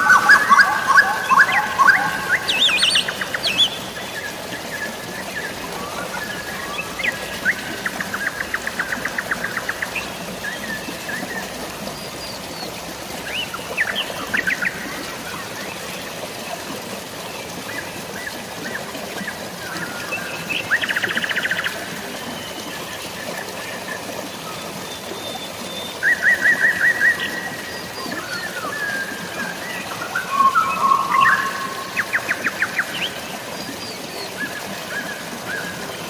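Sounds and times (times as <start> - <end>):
birds chirping: 0.0 - 15.9, 24.1 - 36.0
drizzling rain: 0.0 - 36.0
flowing water: 0.0 - 36.0.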